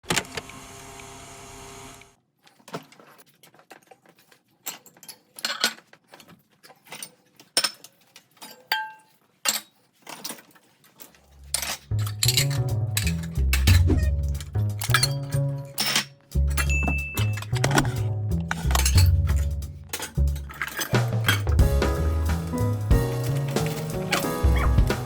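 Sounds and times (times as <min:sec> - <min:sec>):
music with low bass: 0:12.2 - 0:15.1, 0:16.4 - 0:25.0
china ringing: 0:14.9 - 0:17.5
dishes clinking: 0:14.9 - 0:17.9.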